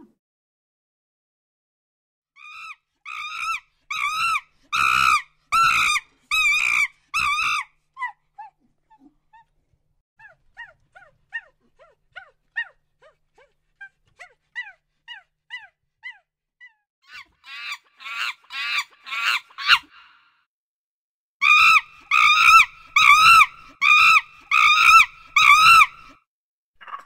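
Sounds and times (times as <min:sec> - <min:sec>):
monkey shrieking: 0:02.4 - 0:09.0, 0:13.8 - 0:20.0, 0:21.4 - 0:26.2
monkey chirping: 0:21.4 - 0:26.1.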